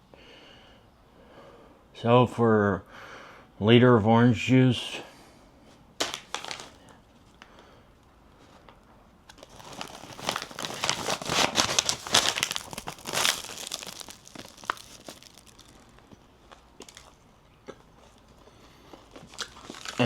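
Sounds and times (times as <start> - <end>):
food wrapping crinkling and tearing: 6.0 - 7.0, 9.3 - 17.2, 17.9 - 20.0.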